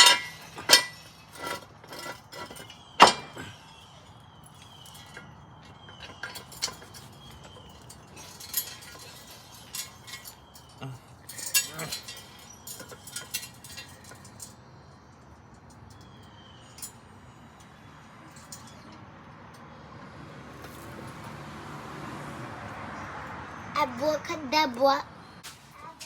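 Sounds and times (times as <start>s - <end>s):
metal jack clinks and rattles: 0.0s - 3.5s, 5.9s - 14.6s.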